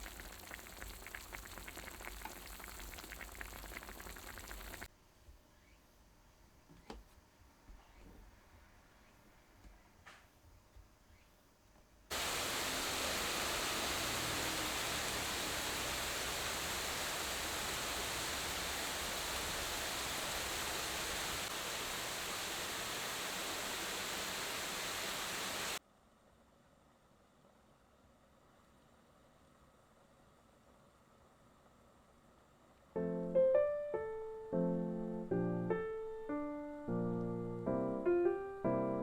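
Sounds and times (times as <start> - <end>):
steady hiss: 0.0 - 4.9, 12.1 - 25.8.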